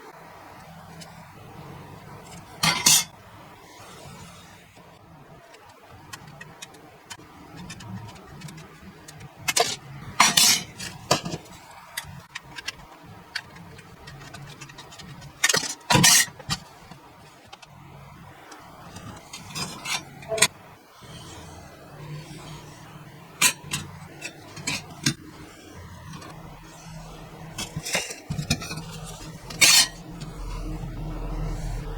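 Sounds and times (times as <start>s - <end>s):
metal clanks and scrapes: 2.2s - 3.2s, 7.6s - 12.8s, 13.4s - 17.7s, 18.9s - 21.5s, 22.2s - 31.9s
thin sheet metal clinking: 2.3s - 3.1s, 9.5s - 11.4s, 27.5s - 30.7s.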